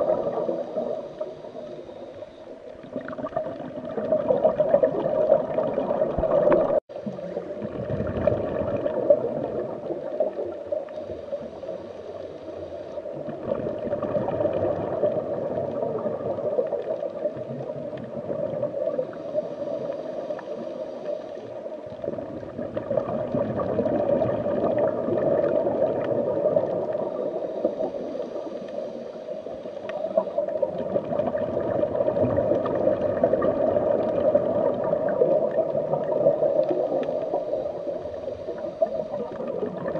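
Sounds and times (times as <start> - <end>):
underwater gurgling and bubbling: 0.0 - 39.9.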